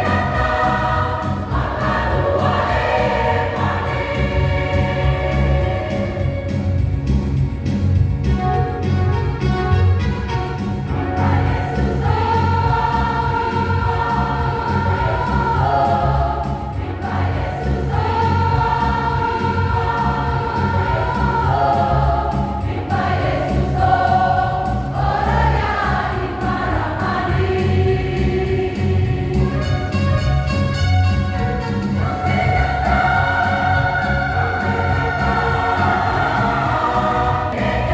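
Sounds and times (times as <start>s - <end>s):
choir singing a gospel song: 0.0s - 37.9s
instrumental accompaniment: 0.0s - 37.9s.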